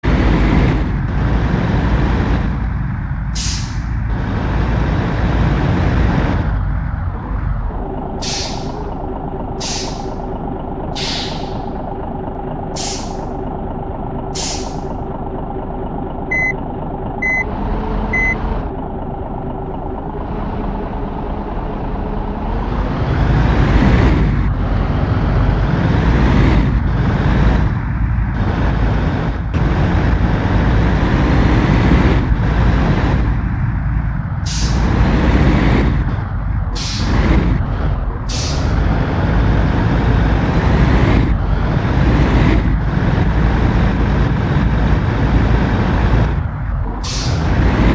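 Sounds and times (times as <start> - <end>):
truck diesel engine running: 0.0 - 47.9
air hissing: 9.6 - 10.1, 11.0 - 11.6, 12.8 - 13.2
short beeps: 16.3 - 16.6, 17.2 - 17.5, 18.1 - 18.4.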